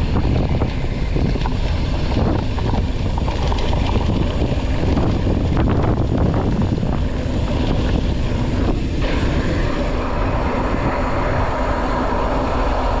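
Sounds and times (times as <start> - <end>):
wind rushing over microphone: 0.0 - 13.0
bike rattling and knocking: 0.6 - 7.2.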